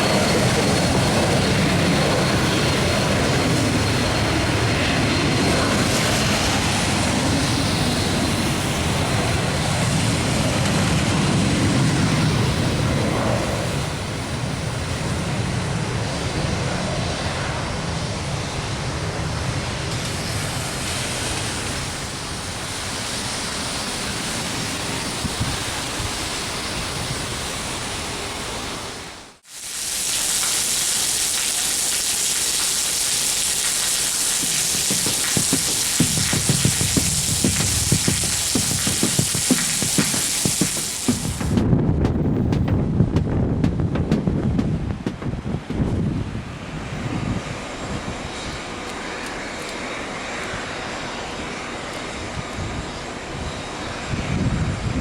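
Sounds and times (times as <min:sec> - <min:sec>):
jet engines running: 0:00.0 - 0:55.0.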